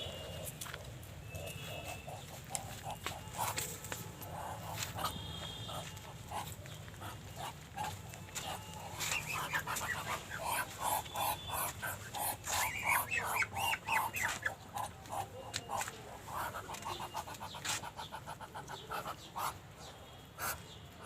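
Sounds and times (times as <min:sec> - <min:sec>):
duck calling in rapid notes: 0:04.2 - 0:15.2.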